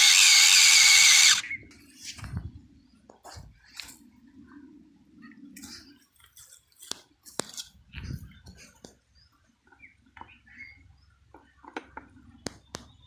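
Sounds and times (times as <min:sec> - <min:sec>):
small electric motor humming: 0:00.0 - 0:01.4.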